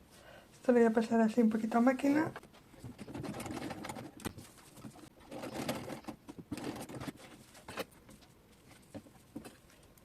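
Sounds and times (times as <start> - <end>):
sewing machine stitching: 5.2 - 7.2.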